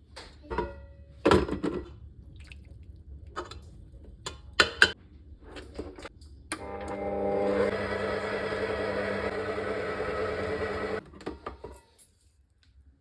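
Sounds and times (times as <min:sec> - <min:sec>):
kitchen appliance humming: 0:06.5 - 0:11.0.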